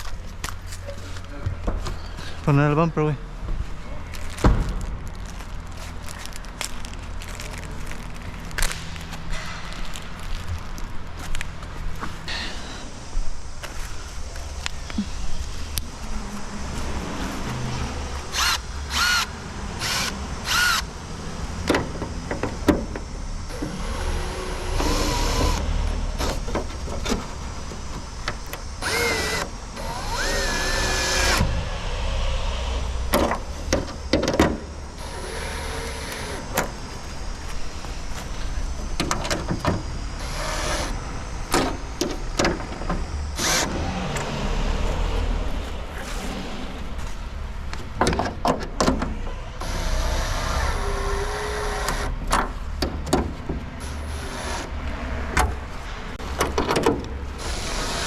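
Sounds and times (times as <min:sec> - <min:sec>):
power drill whining: 0:18.3 - 0:20.9, 0:23.5 - 0:26.4, 0:28.8 - 0:31.5, 0:34.9 - 0:36.5, 0:49.6 - 0:52.1, 0:57.4 - 0:58.0
clicks and knocks of parts: 0:47.7 - 0:49.2.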